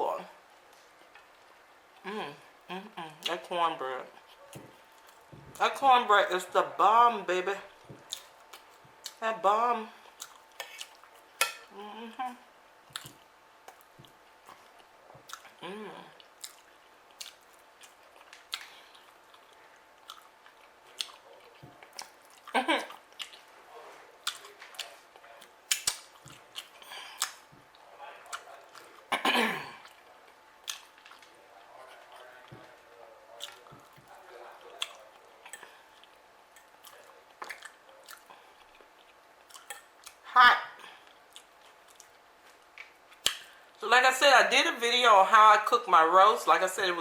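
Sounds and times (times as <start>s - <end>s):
wet chewing and mouth sounds: 4.1s - 5.6s, 7.7s - 9.2s, 10.0s - 11.7s, 12.8s - 29.1s, 29.8s - 40.2s, 40.8s - 43.6s
wet mouth clicks and smacks: 25.7s - 27.4s, 42.8s - 43.5s.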